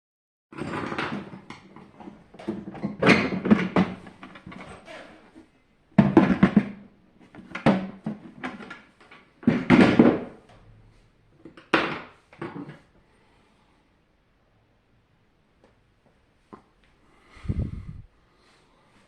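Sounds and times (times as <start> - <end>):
plastic parts knocking and clattering: 0.6 - 4.9, 6.0 - 10.6, 11.4 - 12.8.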